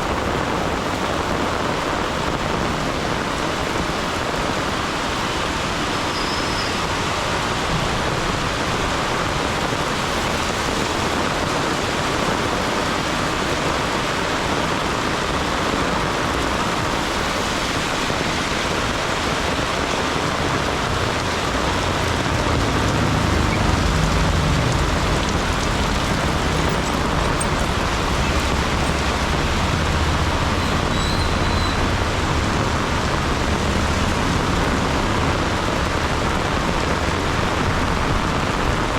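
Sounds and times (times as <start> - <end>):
heavy rain falling: 0.0 - 38.9
low vehicle engine rumble: 18.7 - 38.9.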